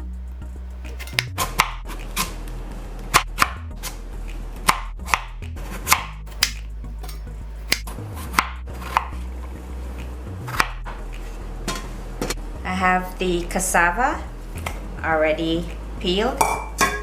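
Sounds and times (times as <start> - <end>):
knife chopping on cutting board: 1.0 - 1.3, 5.9 - 7.8.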